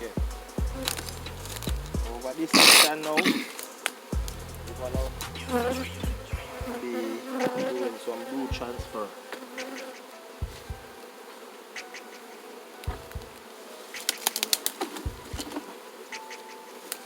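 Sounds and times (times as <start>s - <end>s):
low thumps: 0.0s - 2.4s, 4.1s - 6.8s
bees buzzing in a swarm: 0.0s - 17.0s.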